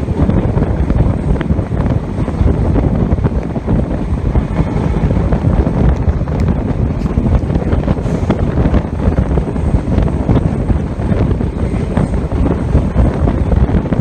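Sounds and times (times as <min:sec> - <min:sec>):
train rumble from on board: 0:00.0 - 0:14.0
wind buffeting microphone: 0:00.0 - 0:14.0.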